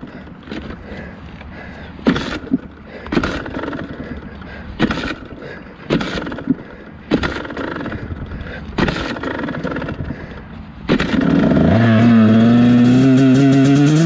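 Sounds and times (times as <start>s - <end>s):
dirt bike engine surging: 0.0s - 14.0s.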